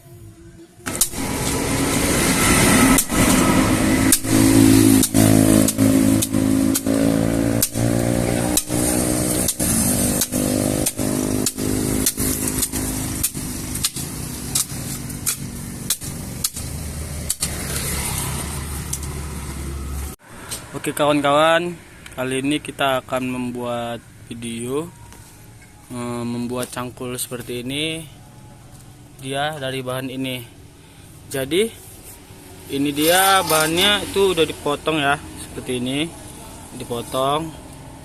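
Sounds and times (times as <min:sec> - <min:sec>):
engine running: 0:00.8 - 0:20.9, 0:32.2 - 0:38.0.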